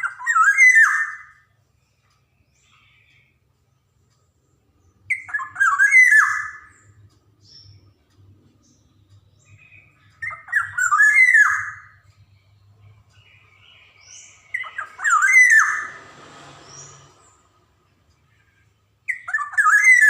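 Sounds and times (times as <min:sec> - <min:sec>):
oriole whistled call: 0:00.0 - 0:01.5, 0:05.1 - 0:07.8, 0:09.4 - 0:12.2, 0:13.4 - 0:16.1, 0:18.3 - 0:20.0.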